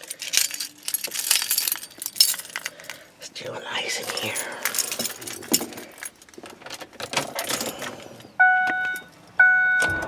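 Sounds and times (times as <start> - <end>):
car keys jangling: 0.0 - 3.0, 3.8 - 9.1
electronic warning chimes: 8.4 - 10.0.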